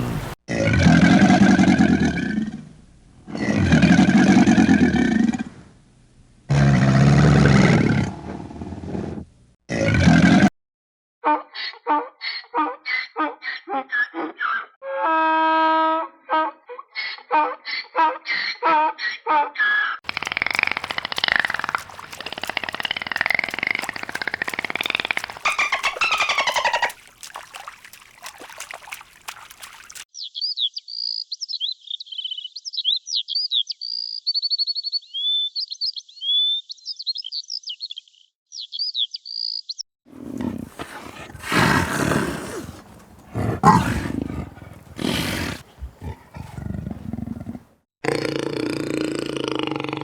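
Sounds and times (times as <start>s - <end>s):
high quick animal chirps and trills: 20.1s - 30.0s, 40.3s - 47.0s
loud rough animal calls: 20.1s - 30.0s, 40.1s - 47.7s.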